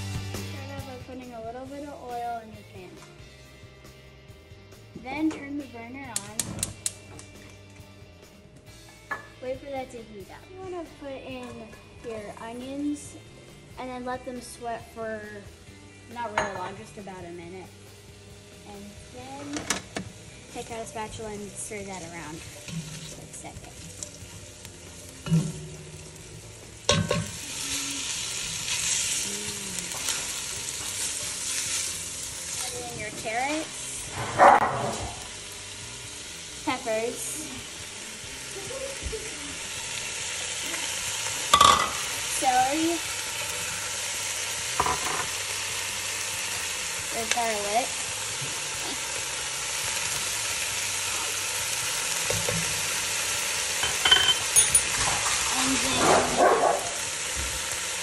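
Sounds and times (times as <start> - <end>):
onions sizzling in hot oil: 0.0 - 4.4, 5.7 - 58.0.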